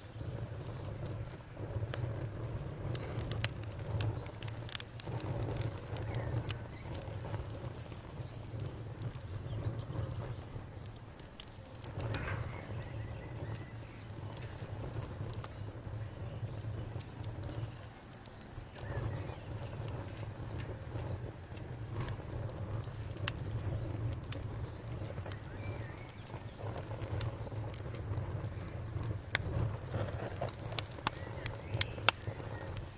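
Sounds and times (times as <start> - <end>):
cricket chirring: 0.0 - 32.9
wood fire crackling and popping: 0.0 - 32.9
bird calls: 12.1 - 14.6, 25.0 - 26.8.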